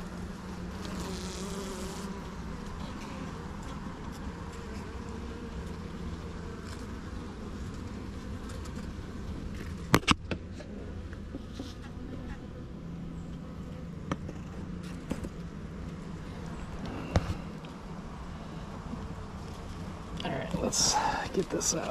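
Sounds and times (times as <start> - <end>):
honeybees buzzing: 0.0 - 10.0, 10.9 - 21.9.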